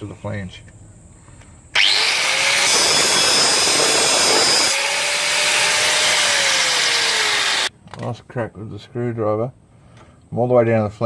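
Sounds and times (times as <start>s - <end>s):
angle grinder grinding metal: 1.8s - 7.7s.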